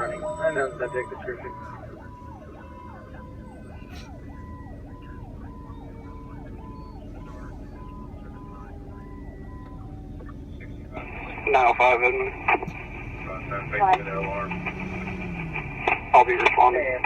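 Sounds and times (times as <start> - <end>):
electronic siren yelping: 0.0 - 11.4
low radio hum and noise: 0.0 - 17.0.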